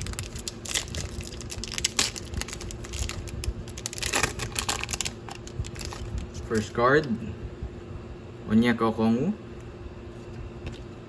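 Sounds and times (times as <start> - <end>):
foil wrapper tearing and crinkling: 0.0 - 6.7.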